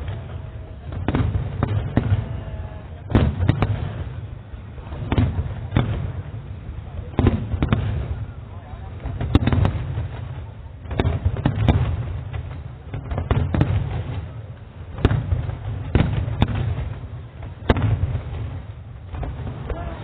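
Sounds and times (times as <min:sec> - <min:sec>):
fireworks bursting: 0:00.0 - 0:20.0.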